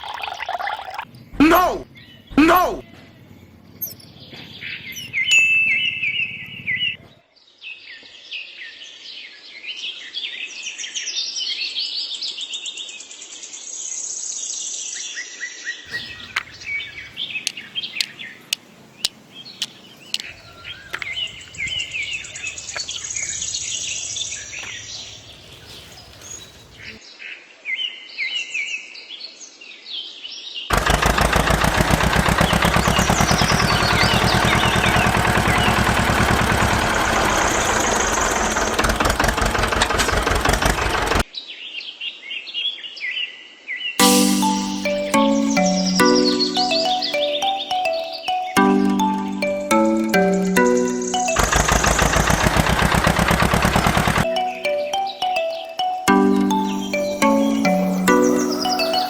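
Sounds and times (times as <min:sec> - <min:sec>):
songbirds chirping and trilling: 0:01.2 - 0:11.4, 0:14.7 - 0:27.1, 0:32.3 - 0:36.1, 0:53.5 - 0:59.0
rapidly pulsing engine: 0:30.7 - 0:41.2, 0:48.9 - 0:54.3.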